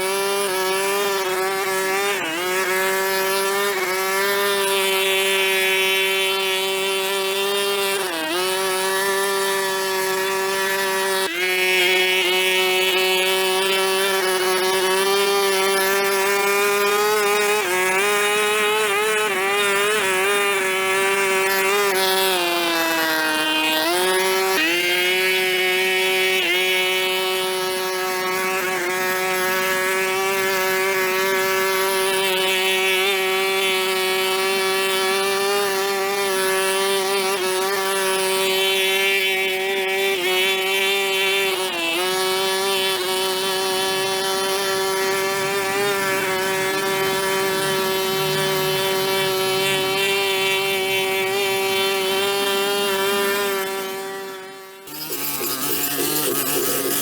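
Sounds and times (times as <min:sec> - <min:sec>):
small gas engine running: 0:00.0 - 0:57.0.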